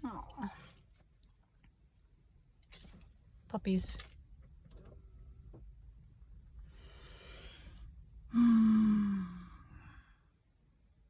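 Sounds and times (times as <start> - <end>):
person sighing: 8.3 - 9.9.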